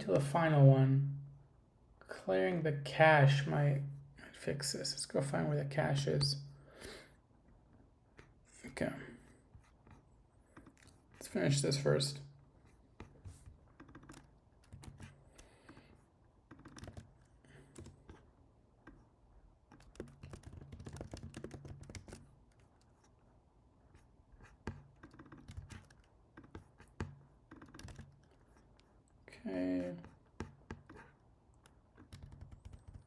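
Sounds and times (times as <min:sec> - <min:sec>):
typing on a computer keyboard: 0:13.2 - 0:19.0, 0:19.7 - 0:23.1, 0:24.4 - 0:28.9, 0:30.0 - 0:33.0.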